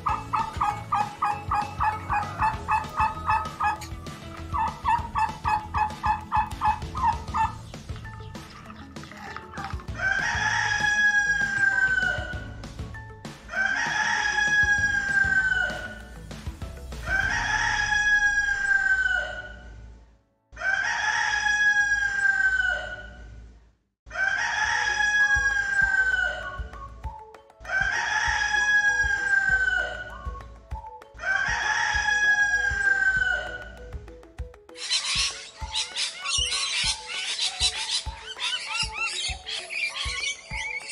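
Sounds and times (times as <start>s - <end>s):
rooster crowing: 13.5s - 16.0s, 17.0s - 19.6s, 20.6s - 23.2s, 24.1s - 26.4s.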